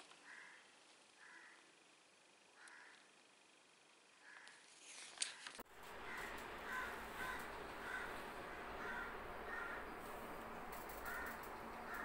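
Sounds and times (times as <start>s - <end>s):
short bird calls: 0.2s - 1.7s, 2.6s - 3.1s, 4.2s - 4.6s, 5.8s - 12.0s.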